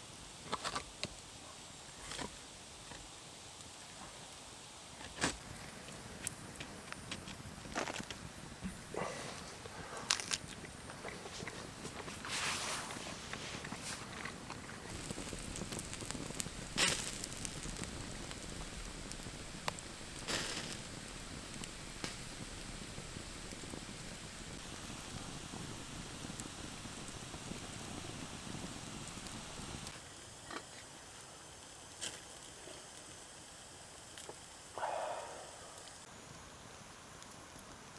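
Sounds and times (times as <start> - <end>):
campfire crackling: 5.2 - 30.2, 34.0 - 37.9.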